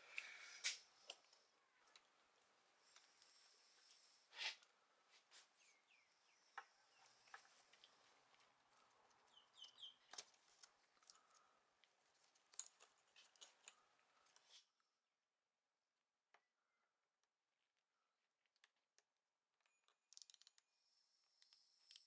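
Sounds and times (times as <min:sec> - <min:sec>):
faint bird chirps: 0:05.4 - 0:08.0, 0:09.0 - 0:10.3.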